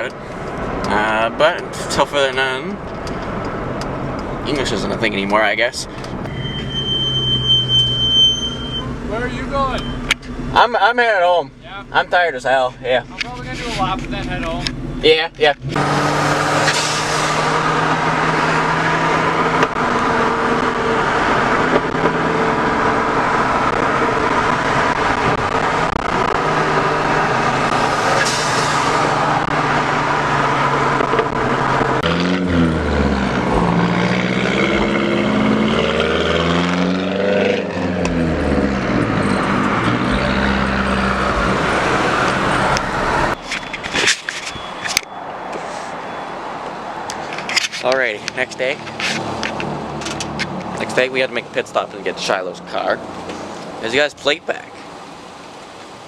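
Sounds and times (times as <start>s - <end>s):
car engine running and revving: 11.5s - 45.1s.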